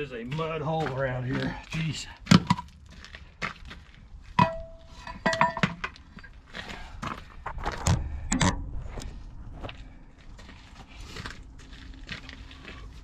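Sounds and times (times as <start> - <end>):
metallic clinks and knocks: 4.4 - 6.4.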